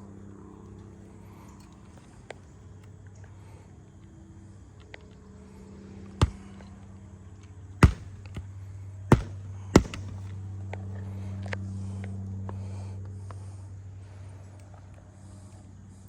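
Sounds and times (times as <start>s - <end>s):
low steady hum: 0.0s - 16.0s
roofing tool knocks on shingles: 6.2s - 6.5s, 7.8s - 8.5s, 9.1s - 10.3s.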